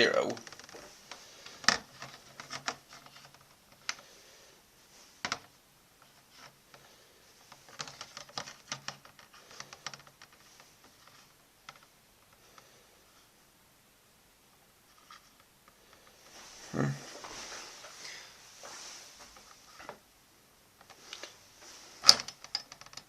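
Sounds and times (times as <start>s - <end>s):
plastic and metal parts clicking: 1.4s - 4.0s, 22.0s - 23.0s.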